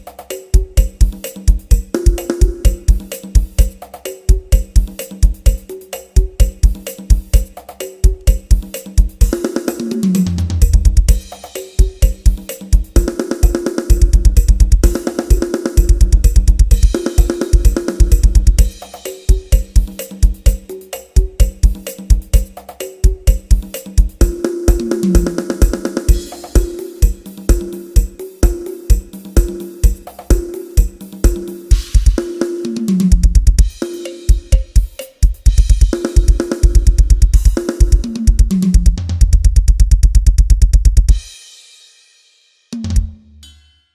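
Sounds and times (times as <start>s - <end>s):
drum kit playing: 0.0s - 43.7s
cymbal and hi-hat strikes: 0.0s - 43.9s
bass drum kicks: 10.6s - 12.2s, 14.0s - 15.0s, 15.8s - 19.8s, 33.0s - 33.8s, 34.4s - 41.2s.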